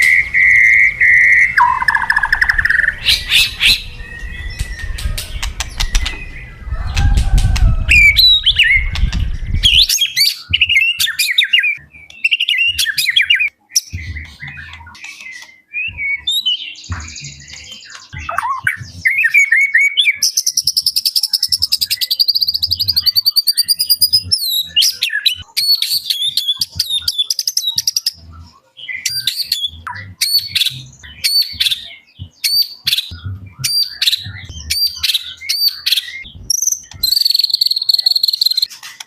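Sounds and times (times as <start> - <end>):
bird singing varied song: 0.0 - 39.0.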